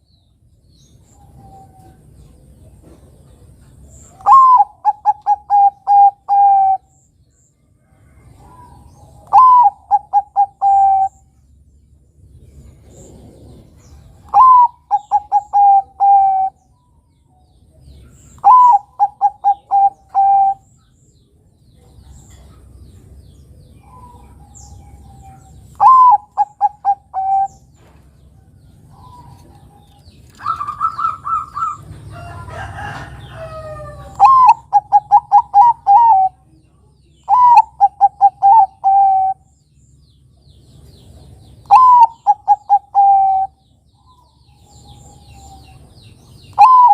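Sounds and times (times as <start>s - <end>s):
dove cooing: 4.1s - 6.9s, 8.3s - 11.2s, 12.9s - 16.6s, 18.4s - 20.7s, 23.8s - 27.7s, 28.9s - 36.5s, 37.2s - 39.5s, 41.6s - 45.8s, 46.5s - 46.9s.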